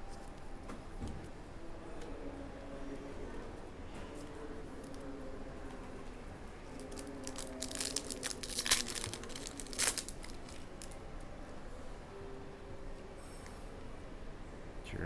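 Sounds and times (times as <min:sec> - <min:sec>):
wrapper crinkling: 0:06.7 - 0:11.0
wrapper ripping: 0:06.8 - 0:11.0.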